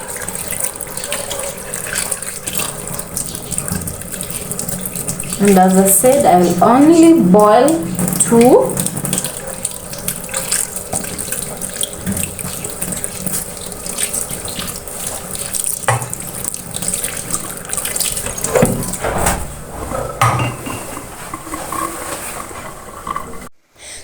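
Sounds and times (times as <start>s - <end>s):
tap water running into sink: 0.0s - 23.5s
bowl and dishes knocking: 19.9s - 21.0s.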